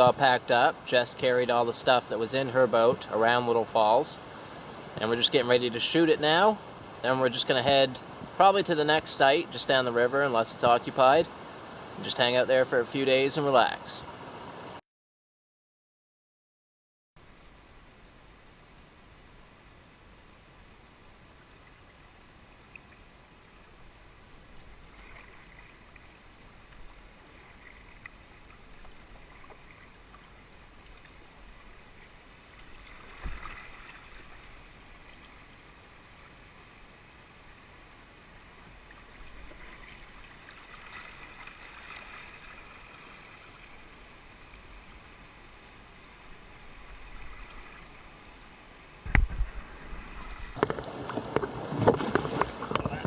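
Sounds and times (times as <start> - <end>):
water splashing: 24.4 - 36.8, 38.6 - 53.0
wind on microphone: 49.0 - 53.0.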